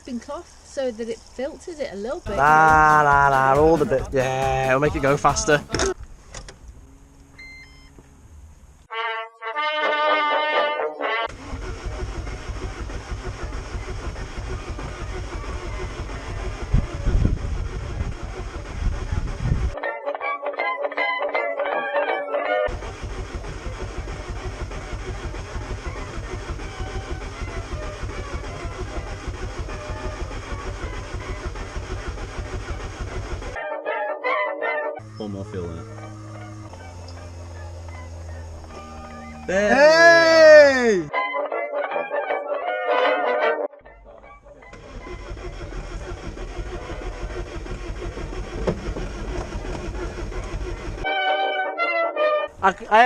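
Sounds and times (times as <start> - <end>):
vehicle engine rumbling: 0.0 - 8.9, 11.3 - 19.8, 22.7 - 33.6, 35.0 - 41.1, 43.8 - 51.1.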